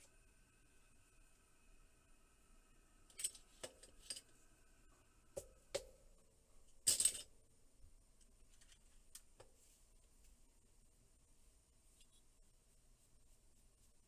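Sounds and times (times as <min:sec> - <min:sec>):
small parts and tools clinking: 0:03.1 - 0:04.4, 0:06.9 - 0:07.3.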